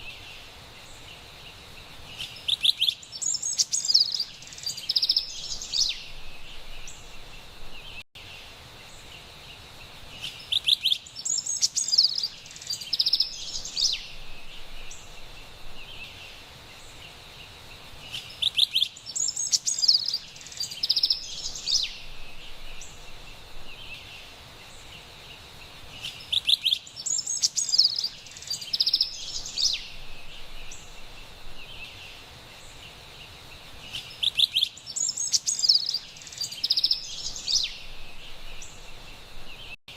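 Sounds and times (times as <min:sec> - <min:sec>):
soft forest hiss: 0:00.0 - 0:39.8
wren singing: 0:02.1 - 0:08.0, 0:10.1 - 0:17.1, 0:18.0 - 0:25.0, 0:25.9 - 0:39.8.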